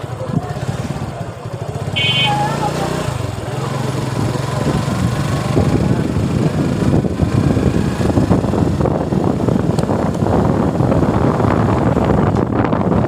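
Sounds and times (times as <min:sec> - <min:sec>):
motorcycle engine running: 0:00.0 - 0:13.0
wind buffeting microphone: 0:02.9 - 0:13.0.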